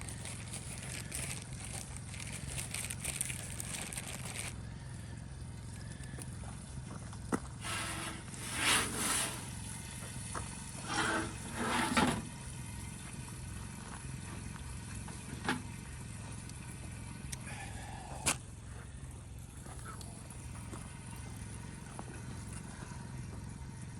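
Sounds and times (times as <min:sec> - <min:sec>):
steady low hum: 0:00.0 - 0:23.9
scraping noises: 0:07.6 - 0:09.7, 0:10.7 - 0:12.3.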